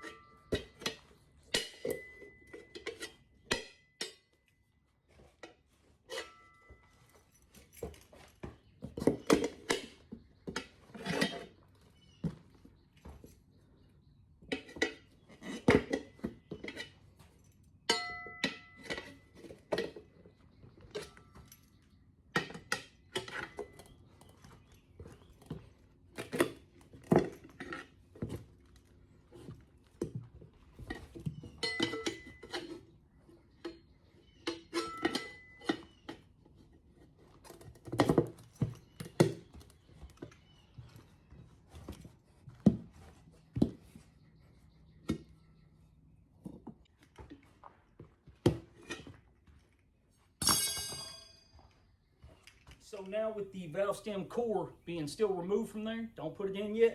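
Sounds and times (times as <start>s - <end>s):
tire irons clanking on wheel rim: 0.0s - 4.3s, 29.4s - 32.9s, 33.6s - 36.3s.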